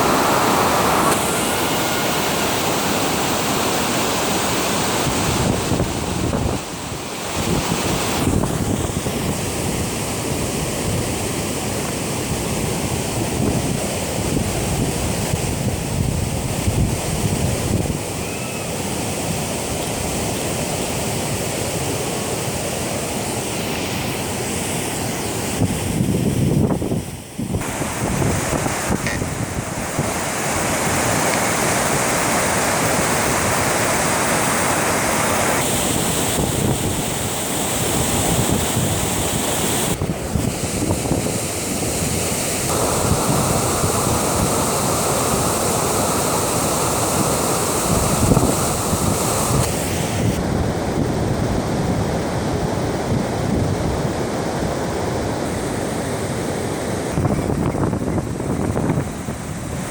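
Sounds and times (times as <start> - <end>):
water rushing at a dam: 0.0 - 59.9
wind buffeting microphone: 4.4 - 11.4, 12.3 - 18.2, 25.5 - 55.6, 56.9 - 59.9.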